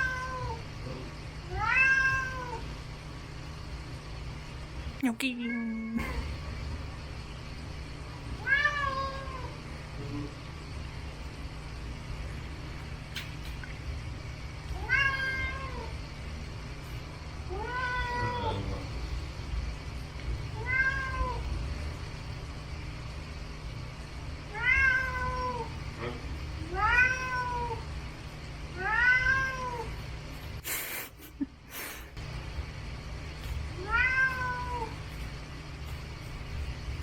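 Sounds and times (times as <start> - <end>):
cat meowing: 0.0 - 0.6, 1.5 - 2.6, 14.8 - 15.9, 17.5 - 18.7, 20.6 - 21.4, 24.5 - 25.7, 26.7 - 27.8, 28.8 - 29.9, 33.8 - 35.0.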